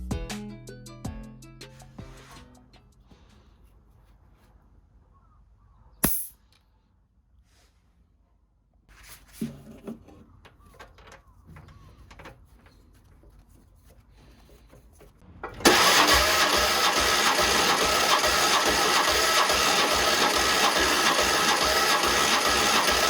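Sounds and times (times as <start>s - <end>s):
car engine starting and running: 15.2s - 23.0s.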